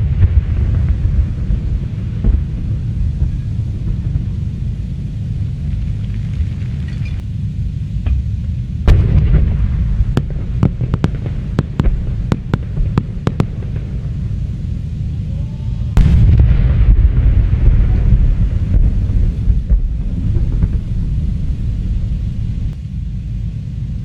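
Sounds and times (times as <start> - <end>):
firework barrage: 0.0 - 7.2, 7.8 - 24.0
distant firework bursts rumbling: 0.0 - 24.0
sharp firework cracks: 8.9 - 14.4.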